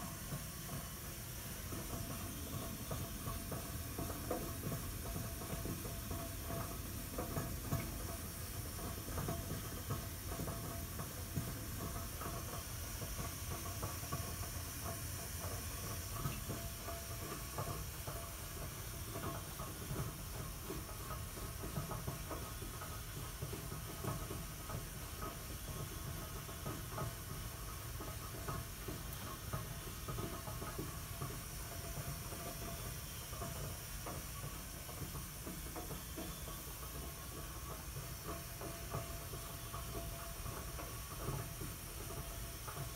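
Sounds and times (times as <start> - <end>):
boiler hissing with low rumble: 0.0 - 42.9
small crackles and ticks: 0.0 - 42.9.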